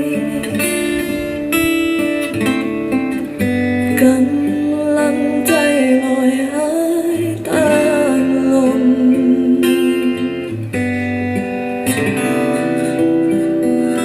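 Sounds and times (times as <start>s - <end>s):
person singing: 0.0s - 1.4s, 3.8s - 10.7s, 12.0s - 14.0s
guitar-led music with beat: 0.0s - 14.0s.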